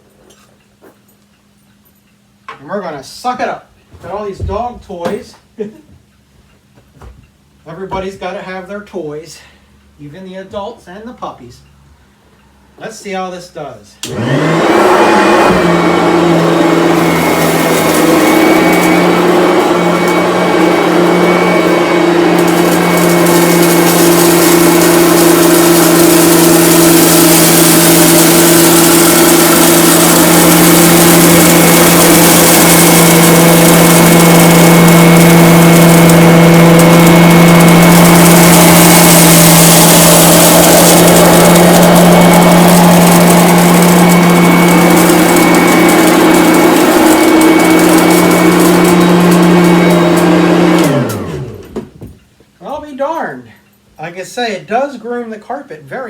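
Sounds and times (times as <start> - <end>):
vacuum cleaner running: 14.0 - 52.0
vacuum sucking up rice: 14.1 - 51.6.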